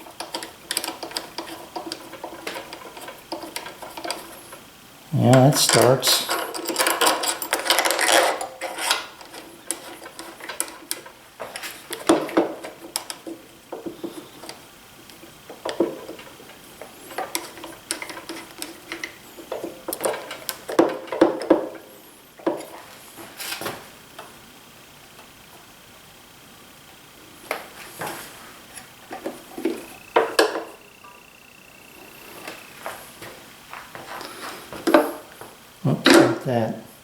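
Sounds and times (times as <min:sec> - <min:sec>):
metallic clinks of hand tools: 0:05.2 - 0:09.0.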